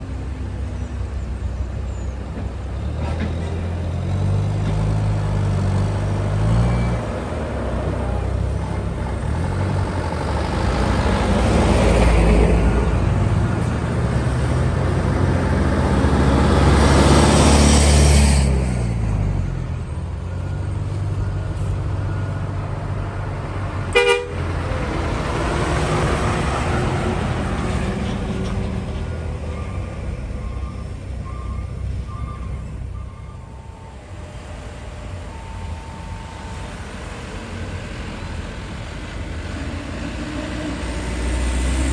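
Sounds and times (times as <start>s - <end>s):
diesel trucks passing: 0.0s - 41.9s
truck horn toot: 23.9s - 24.6s.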